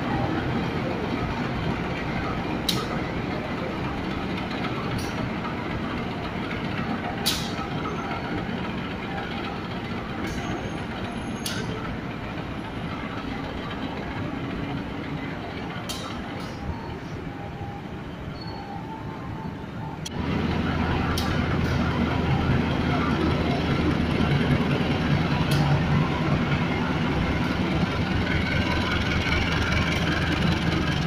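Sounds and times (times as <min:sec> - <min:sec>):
diesel locomotive rumbling: 0:00.0 - 0:31.0.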